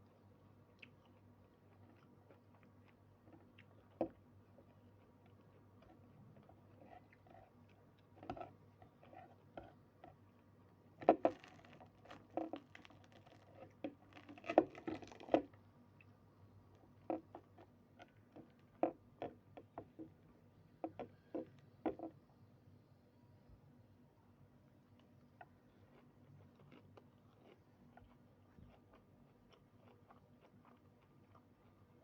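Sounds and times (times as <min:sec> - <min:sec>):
person eating crunchy bites: 0:11.0 - 0:15.5.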